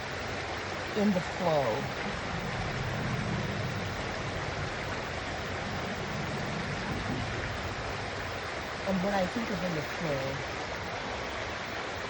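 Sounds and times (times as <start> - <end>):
stream water flowing over rocks: 0.0 - 12.0.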